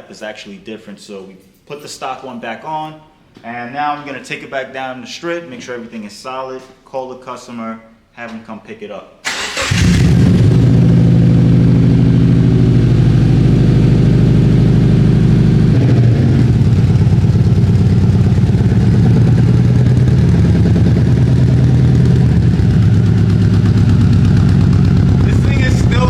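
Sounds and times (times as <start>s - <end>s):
car engine idling: 9.7s - 26.0s.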